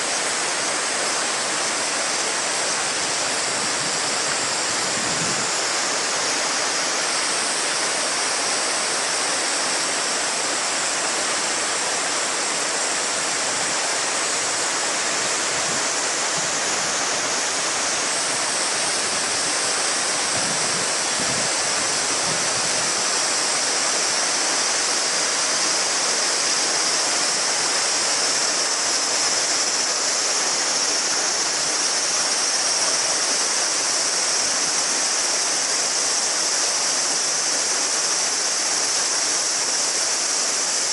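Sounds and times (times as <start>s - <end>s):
cicadas droning: 0.0s - 40.9s
river babbling over stones: 0.0s - 40.9s.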